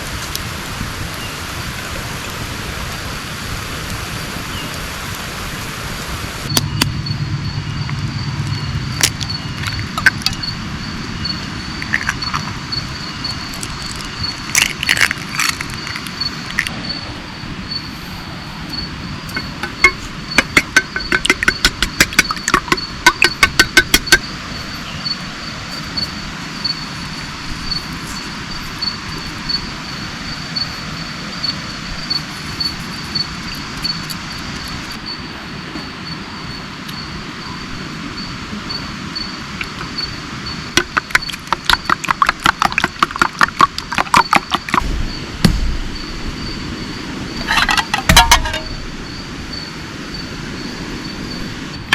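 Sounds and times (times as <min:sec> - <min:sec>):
steady rain: 0:00.0 - 0:51.9
high-pitched insect trill: 0:06.5 - 0:51.9
rapid sharp clicks: 0:19.3 - 0:24.3.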